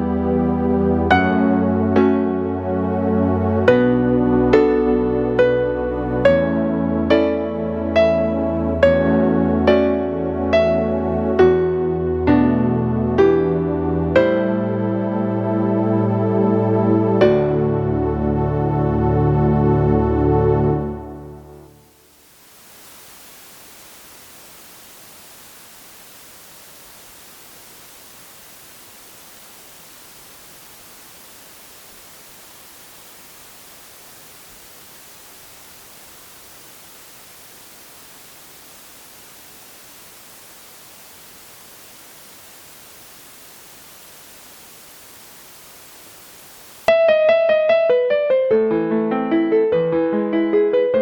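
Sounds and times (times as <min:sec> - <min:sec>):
steady electronic hiss: 0:00.0 - 0:18.0, 0:19.9 - 0:47.6
piano piece: 0:00.0 - 0:21.8, 0:46.9 - 0:51.0
piano notes: 0:46.9 - 0:51.0.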